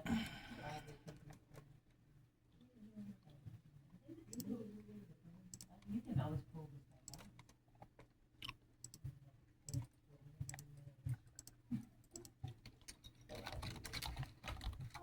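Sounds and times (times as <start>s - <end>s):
faint clicks and taps: 7.0s - 15.0s.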